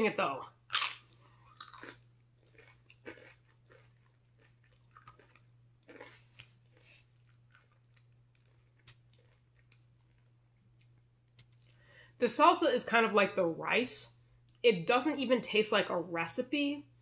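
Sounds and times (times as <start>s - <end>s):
steady low hum: 0.0s - 17.0s
person chewing crunchy chips: 0.6s - 11.9s.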